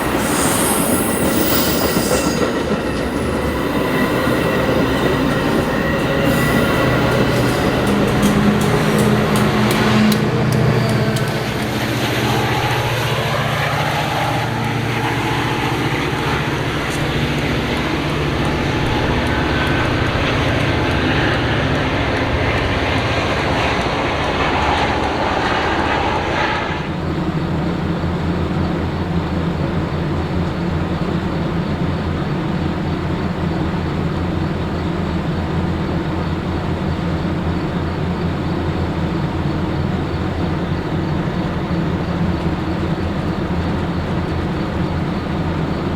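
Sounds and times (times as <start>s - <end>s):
high hiss: 0.0s - 9.3s
locomotive engine drone: 0.0s - 45.9s
train rumbling on rails: 0.0s - 45.9s.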